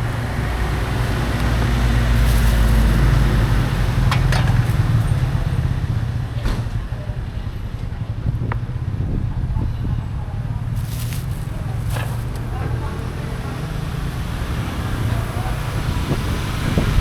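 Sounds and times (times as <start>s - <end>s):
vehicle engine running: 0.0s - 6.4s, 10.1s - 17.0s.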